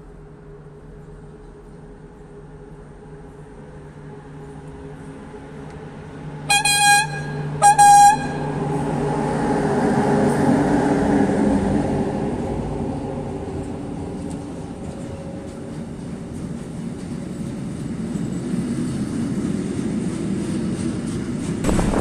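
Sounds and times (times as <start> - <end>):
freight train running past: 0.0 - 22.0
locomotive horn blasts: 6.5 - 8.7.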